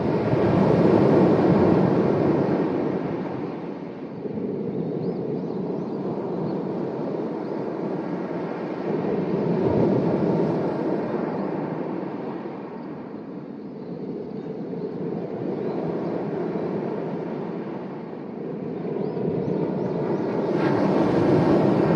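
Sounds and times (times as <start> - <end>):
sea waves washing onto shore: 20.4 - 21.9.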